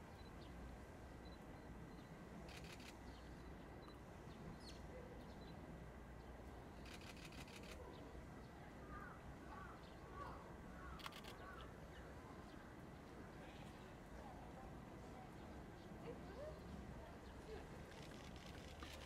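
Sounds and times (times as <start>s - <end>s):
faint bird chirps: 1.2s - 5.6s
faint clicks: 6.8s - 7.8s, 10.9s - 11.7s, 17.9s - 19.0s.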